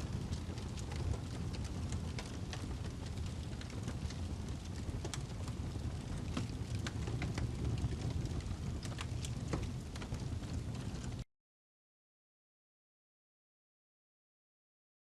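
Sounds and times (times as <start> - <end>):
fire crackles and pops: 0.0 - 11.2
fire low rumble: 0.0 - 11.2.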